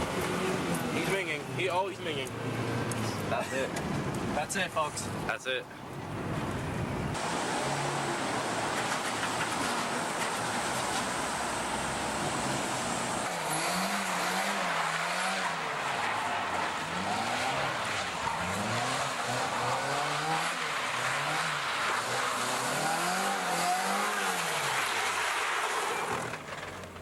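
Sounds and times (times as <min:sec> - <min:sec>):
car engine revving: 0:06.2 - 0:27.0
tires squealing: 0:06.2 - 0:27.0.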